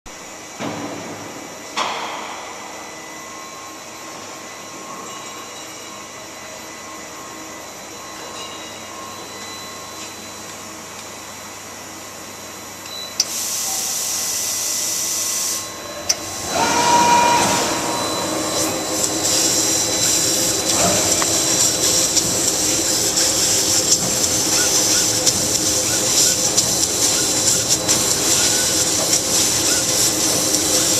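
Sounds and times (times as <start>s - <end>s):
laser cutting machine humming: 9.2s - 30.9s
hiss with crackling: 13.2s - 17.3s, 18.4s - 30.9s
loud hiss: 13.3s - 30.9s.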